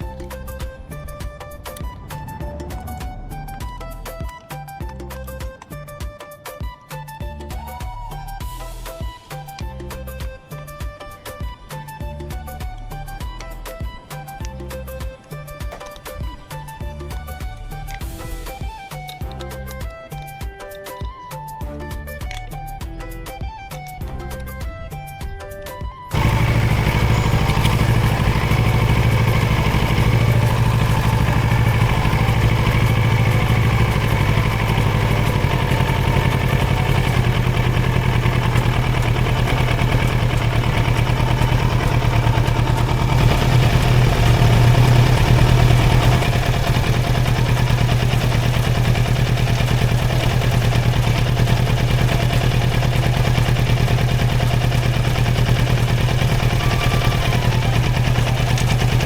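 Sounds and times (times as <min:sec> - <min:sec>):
motorcycle engine idling: 0:00.0 - 0:21.4, 0:22.0 - 0:59.0.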